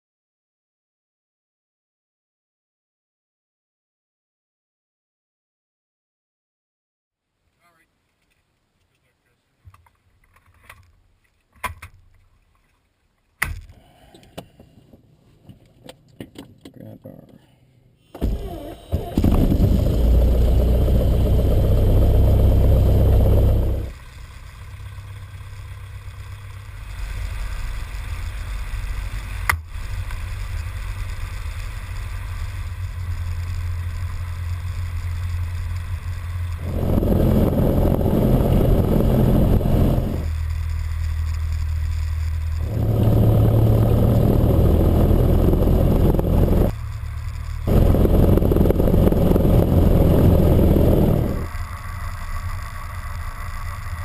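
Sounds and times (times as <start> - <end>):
light aircraft engine starting: 18.1 - 54.0.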